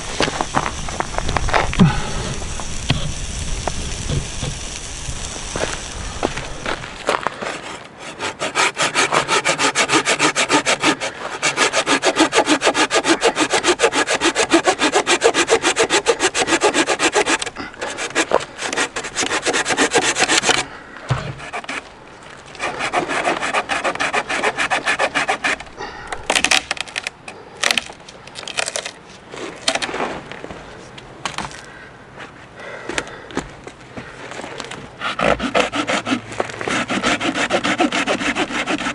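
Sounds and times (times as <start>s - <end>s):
hand saw cutting wood: 6.6s - 21.9s, 22.5s - 27.0s, 35.0s - 38.9s
knocks and scrapes: 16.6s - 25.7s.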